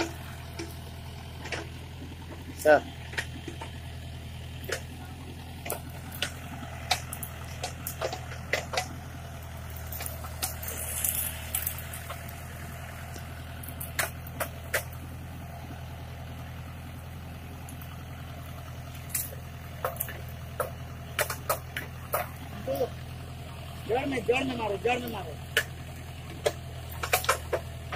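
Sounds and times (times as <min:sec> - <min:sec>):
diesel engine running: 0:00.0 - 0:27.9
sharp knocks and clanks: 0:01.4 - 0:02.5, 0:05.6 - 0:08.9, 0:26.3 - 0:27.9.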